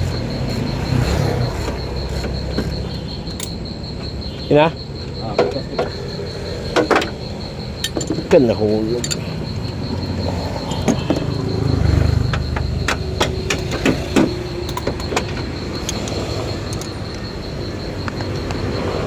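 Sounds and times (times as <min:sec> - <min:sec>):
insect-like trill: 0:00.0 - 0:19.0
metallic clicks and knocks: 0:01.6 - 0:03.6, 0:06.6 - 0:18.6.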